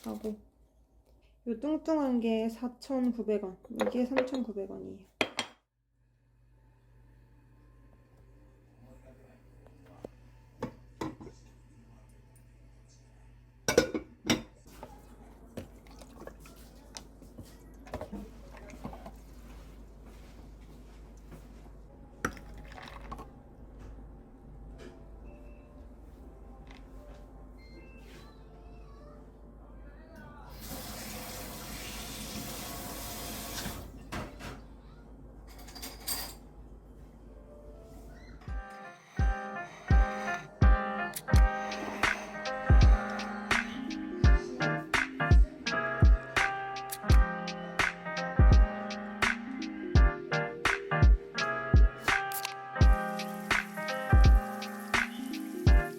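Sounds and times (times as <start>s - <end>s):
water running: 15.6s - 19.6s, 30.5s - 33.9s, 52.8s - 55.9s.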